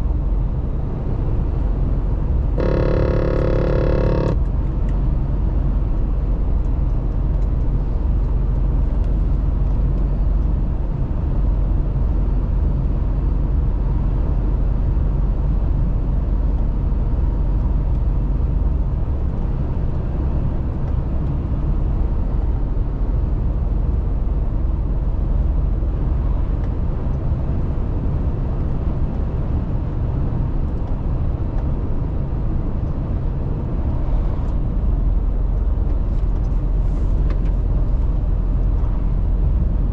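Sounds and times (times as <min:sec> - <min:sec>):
diesel truck engine drone: 0:00.0 - 0:39.9
road and tyre noise: 0:00.0 - 0:39.9.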